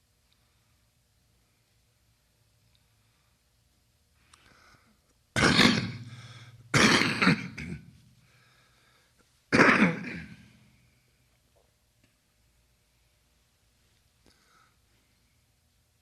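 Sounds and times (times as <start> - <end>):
person coughing: 5.4 - 7.9, 9.5 - 10.5.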